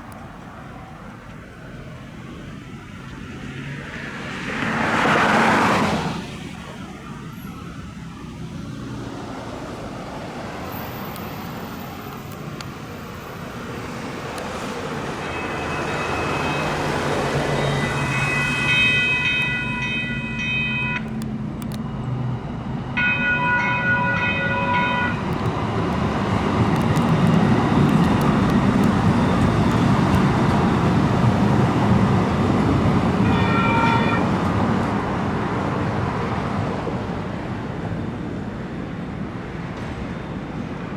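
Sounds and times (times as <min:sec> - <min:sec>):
train rumbling past: 0:08.5 - 0:40.9
train horn: 0:15.2 - 0:21.1, 0:23.0 - 0:25.3, 0:33.2 - 0:34.5.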